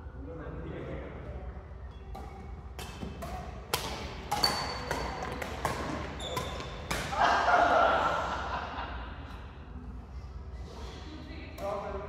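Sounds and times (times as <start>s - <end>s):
racket striking shuttlecock: 2.1s - 7.2s.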